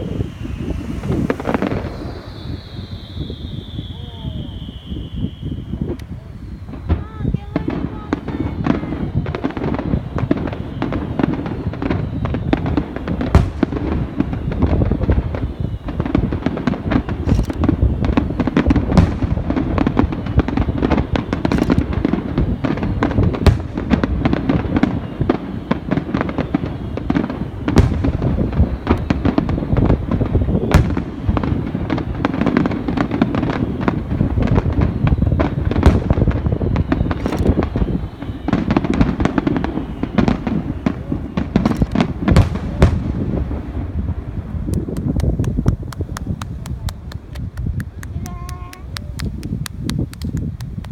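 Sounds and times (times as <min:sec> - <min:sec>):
fireworks bursting and crackling: 0:00.0 - 0:50.9
loud firework bangs: 0:00.0 - 0:50.9.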